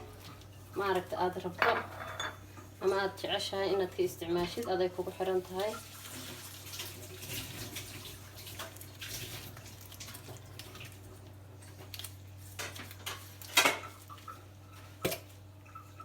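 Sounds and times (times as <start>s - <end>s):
bottle and bowl clinking: 1.6s - 2.4s.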